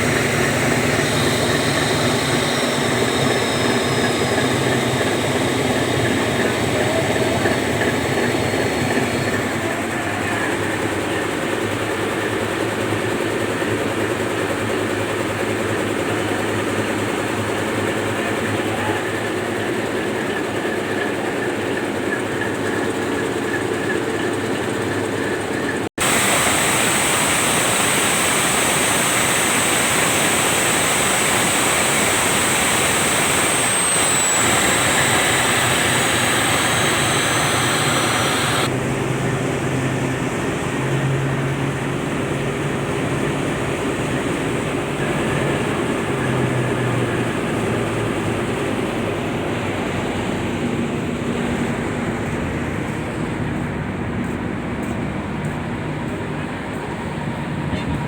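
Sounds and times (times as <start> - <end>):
diesel engines running: 0.0 - 58.0.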